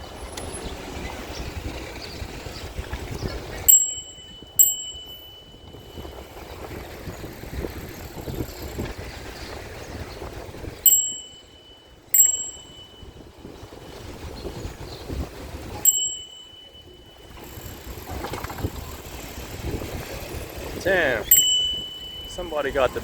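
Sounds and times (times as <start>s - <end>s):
street traffic rumble: 0.0s - 23.0s
wind: 0.0s - 23.0s
bicycle bell ringing: 3.6s - 8.5s, 10.6s - 14.6s, 15.2s - 23.0s.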